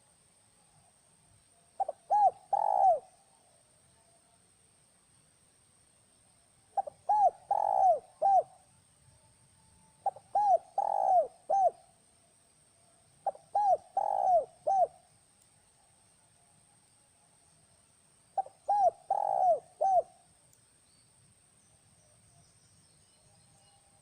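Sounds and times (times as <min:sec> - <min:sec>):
dove cooing: 0:01.8 - 0:03.2, 0:06.8 - 0:08.6, 0:10.0 - 0:11.8, 0:13.2 - 0:15.0, 0:18.4 - 0:20.2.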